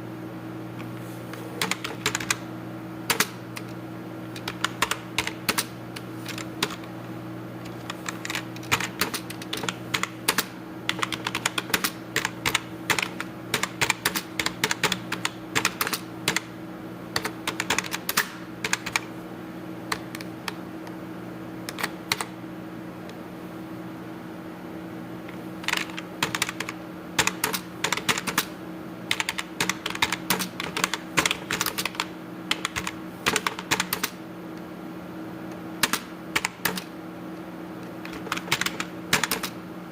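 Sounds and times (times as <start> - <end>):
steady low hum: 0.0 - 39.9
computer keyboard typing: 1.6 - 2.4, 3.1 - 6.9, 7.6 - 16.5, 17.2 - 19.1, 21.7 - 22.3, 25.6 - 28.5, 29.1 - 34.2, 35.8 - 36.9, 37.8 - 39.6.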